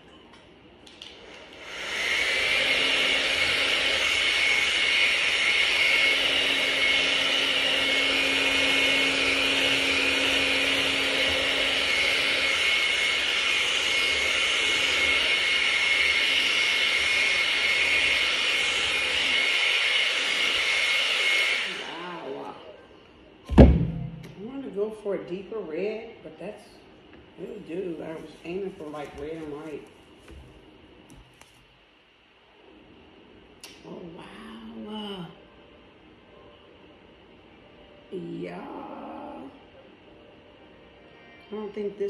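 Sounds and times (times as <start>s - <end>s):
hair dryer running: 1.0s - 22.8s.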